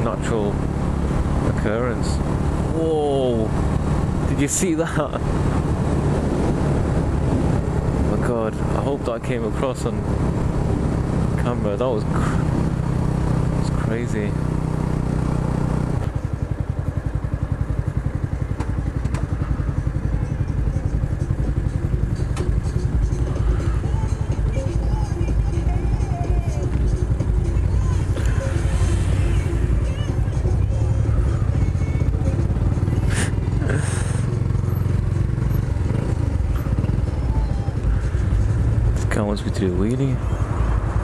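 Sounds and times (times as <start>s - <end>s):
motorcycle engine idling: 13.8s - 41.0s.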